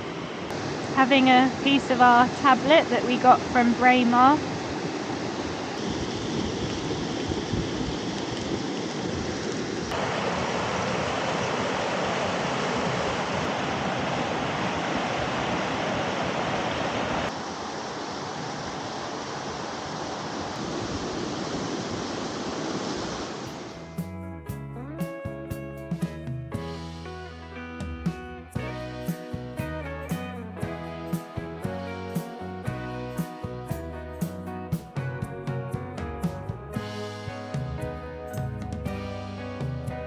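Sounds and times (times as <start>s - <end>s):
river water flowing over rocks: 0.0s - 23.7s
strummed guitar music: 23.8s - 40.0s.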